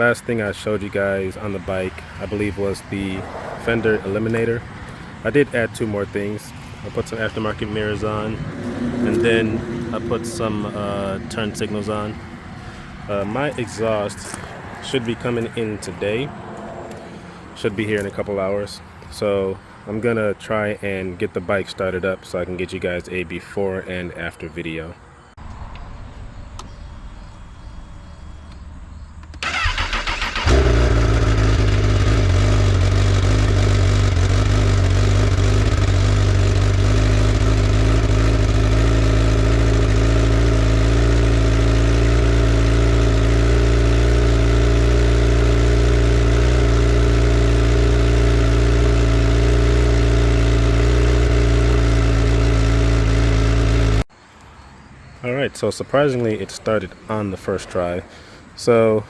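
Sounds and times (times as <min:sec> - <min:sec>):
motorcycle engine idling: 0:00.0 - 0:15.8, 0:29.4 - 0:54.0
motorcycle starter cranking: 0:29.3 - 0:39.0.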